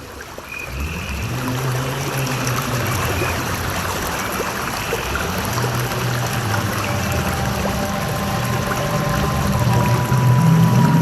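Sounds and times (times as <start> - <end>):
stream water rushing: 0.0 - 11.0
low held tone: 4.8 - 11.0.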